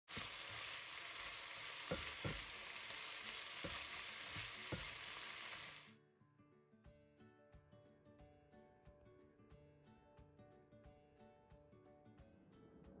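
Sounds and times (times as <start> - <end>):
chicken sizzling in frying pan: 0.1 - 5.9
spatula knocking on pan: 1.8 - 2.7, 3.5 - 5.0.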